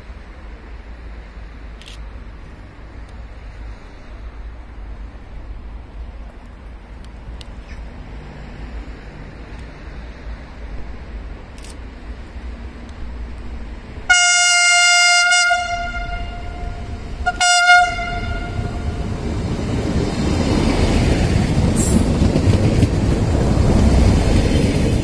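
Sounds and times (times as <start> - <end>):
train rumbling past: 0.0 - 25.0
train horn blasts: 14.1 - 19.2.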